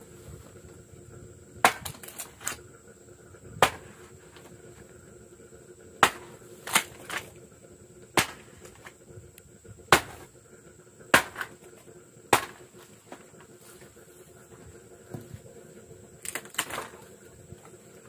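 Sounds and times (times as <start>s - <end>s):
sharp cracks or knocks: 1.6s - 2.6s, 6.0s - 7.3s, 8.2s - 9.0s, 11.2s - 11.6s, 12.3s - 13.2s, 16.2s - 17.0s.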